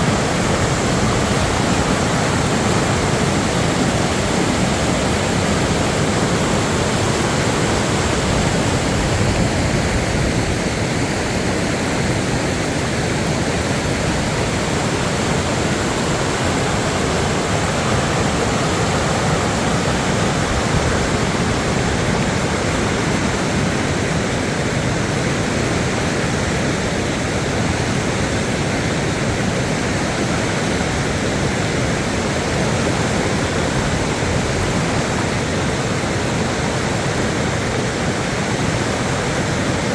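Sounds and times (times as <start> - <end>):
floodwater rushing: 0.0 - 39.9.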